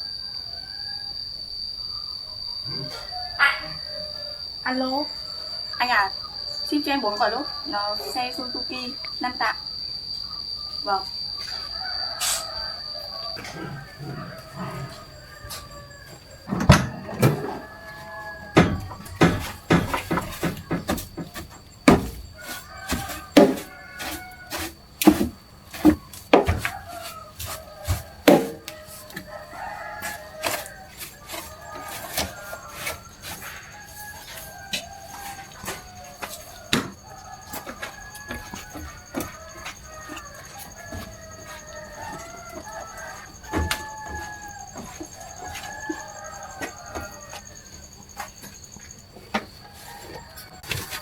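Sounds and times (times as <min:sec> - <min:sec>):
rooster crowing: 0:00.0 - 0:51.0
chickens clucking: 0:02.6 - 0:04.8
sharp metallic knocks and clanks: 0:18.5 - 0:24.2, 0:27.9 - 0:28.7.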